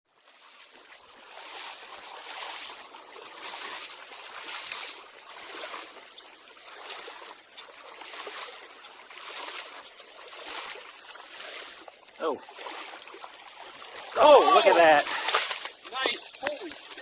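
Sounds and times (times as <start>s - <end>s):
stream water rushing: 0.1s - 17.0s.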